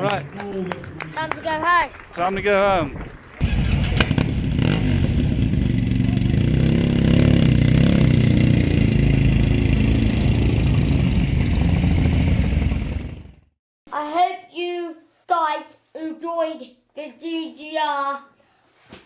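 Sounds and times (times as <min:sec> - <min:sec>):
motorcycle engine running: 0:03.4 - 0:13.6.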